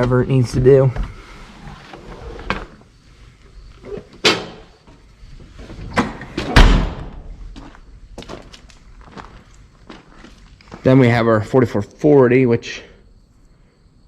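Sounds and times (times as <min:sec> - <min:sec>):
door slamming shut: 0:04.2 - 0:04.7, 0:05.8 - 0:07.4.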